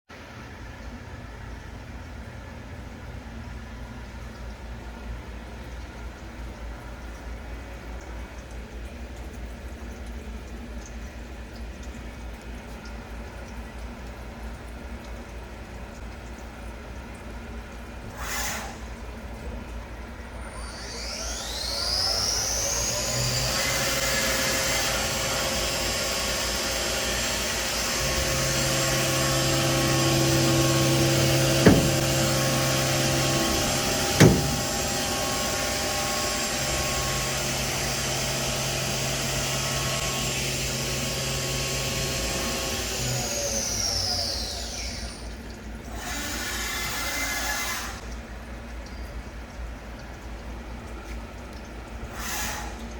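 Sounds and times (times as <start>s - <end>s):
low machine hum: 18.9s - 45.9s
mill spindle whine: 20.3s - 48.0s.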